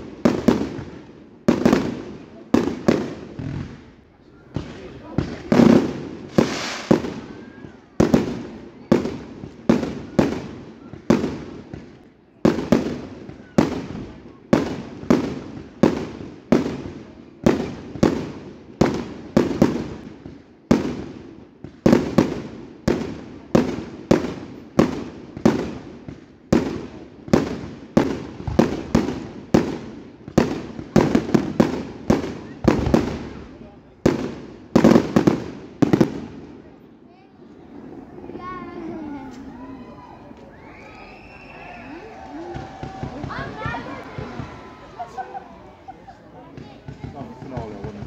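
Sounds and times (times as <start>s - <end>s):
firework bangs with echo: 0.0s - 36.7s, 46.4s - 48.0s.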